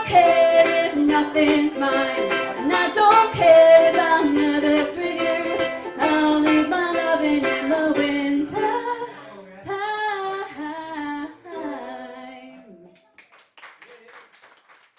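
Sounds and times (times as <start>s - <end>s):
strummed strings: 0.0s - 9.2s
woman singing: 0.0s - 12.9s.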